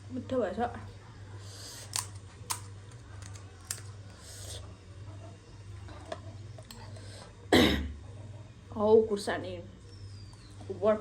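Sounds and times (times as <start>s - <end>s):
crackly chewing: 1.4s - 4.8s.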